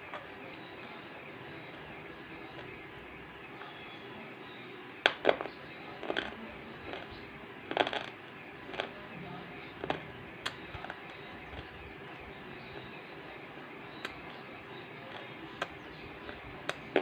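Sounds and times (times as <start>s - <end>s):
dry clay crunching and cracking: 5.0s - 13.1s, 13.9s - 17.0s.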